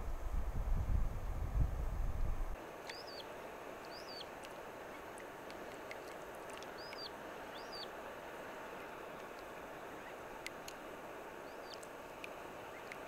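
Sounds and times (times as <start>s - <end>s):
wind rumble on microphone: 0.0s - 2.6s
soft rushing background: 0.0s - 13.0s
bird calling: 2.8s - 8.0s, 8.7s - 13.0s.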